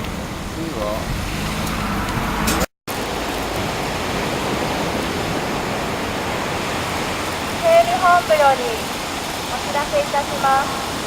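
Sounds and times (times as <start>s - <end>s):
surf breaking on beach: 2.9s - 11.0s.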